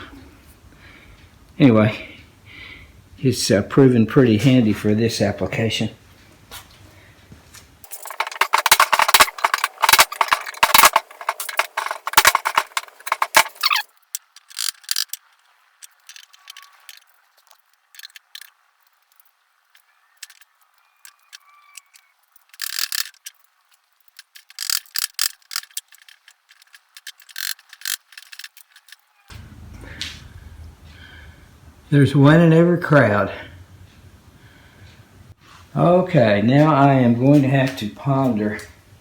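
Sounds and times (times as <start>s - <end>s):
scraper clicks: 7.9s - 17.1s, 24.1s - 29.0s.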